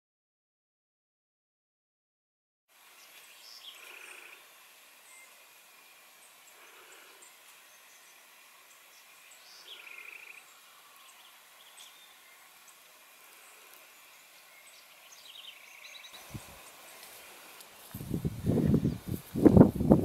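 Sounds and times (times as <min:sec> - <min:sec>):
distant birdsong: 0:02.7 - 0:20.0.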